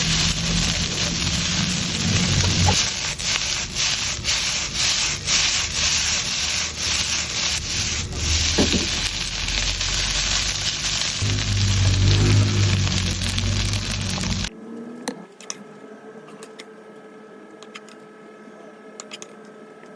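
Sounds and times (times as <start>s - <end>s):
rice sizzling in a pan: 0.0s - 14.5s
spatula scraping a pan: 0.0s - 14.5s.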